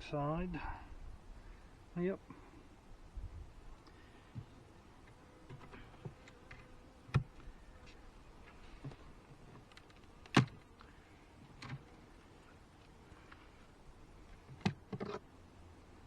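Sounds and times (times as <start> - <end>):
wooden frames clicking and scraping: 14.4 - 15.3.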